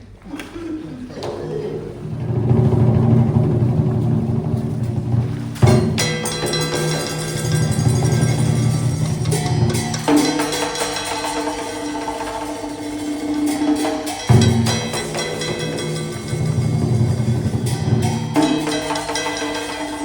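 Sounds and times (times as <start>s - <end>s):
drum strokes: 1.1s - 20.0s
sustained melodic instrument lines: 2.1s - 20.0s.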